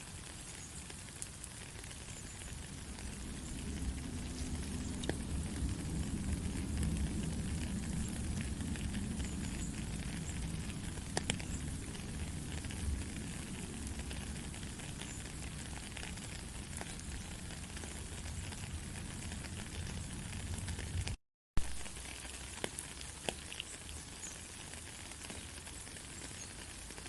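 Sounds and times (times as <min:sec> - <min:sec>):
steady rain falling: 0:00.0 - 0:27.0
low rumble: 0:02.4 - 0:21.2.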